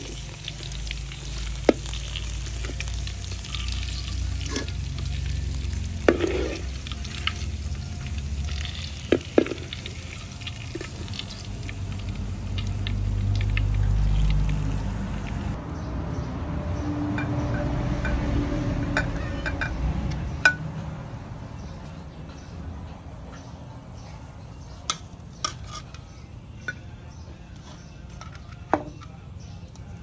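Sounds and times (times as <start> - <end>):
meat sizzling in a wok: 0.0 - 15.6
spatula scraping a pan: 1.6 - 11.5, 25.4 - 26.2.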